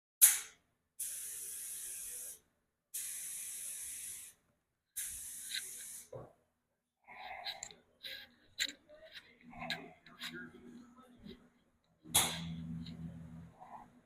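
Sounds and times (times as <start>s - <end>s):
sharp click: 0.2s - 0.6s
hissing sprays: 1.0s - 2.4s, 3.0s - 4.4s, 5.0s - 6.2s.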